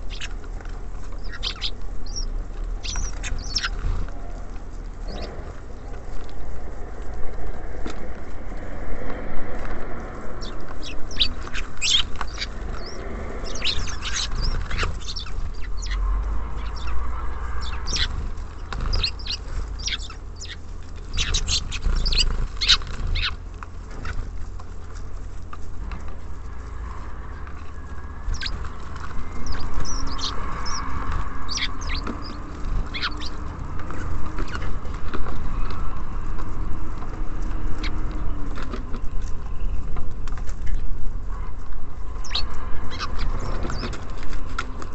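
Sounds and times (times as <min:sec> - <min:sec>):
birds tapping at feeder: 0:00.0 - 0:04.4, 0:10.3 - 0:24.2, 0:27.4 - 0:40.9
small birds chirping: 0:00.0 - 0:44.9
steady low rumble: 0:00.0 - 0:44.9.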